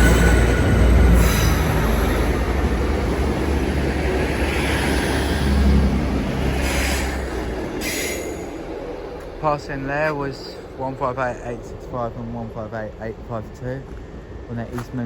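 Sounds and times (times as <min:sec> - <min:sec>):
high squeal: 0:00.0 - 0:03.3
diesel train passing: 0:00.0 - 0:15.0.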